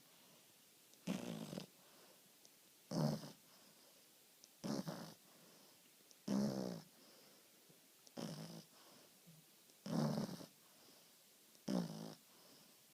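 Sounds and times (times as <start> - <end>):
dog snoring: 1.0 - 1.7, 2.9 - 3.7, 4.6 - 7.3, 8.1 - 9.0, 9.8 - 12.8.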